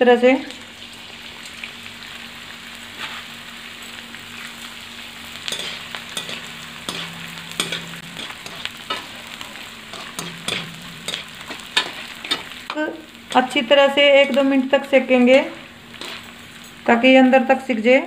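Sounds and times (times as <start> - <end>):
gum frying in hot oil: 0.0 - 18.0
metal spoon scraping a pan: 5.4 - 12.6, 16.0 - 16.3.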